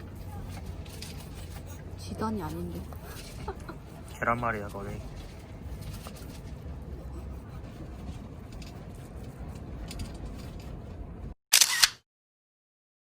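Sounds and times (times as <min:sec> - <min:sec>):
outdoor background noise: 0:00.0 - 0:12.0
camera shutter double click: 0:11.5 - 0:12.0.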